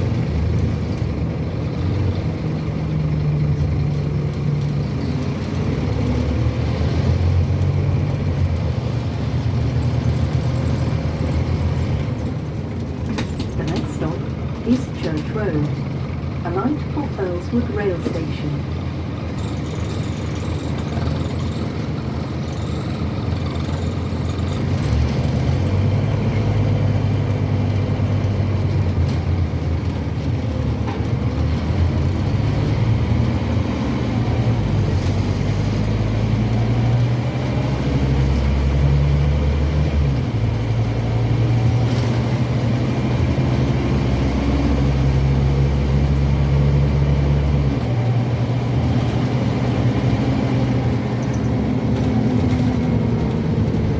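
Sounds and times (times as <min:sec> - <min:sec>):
bus diesel engine drone: 0:00.0 - 0:53.9.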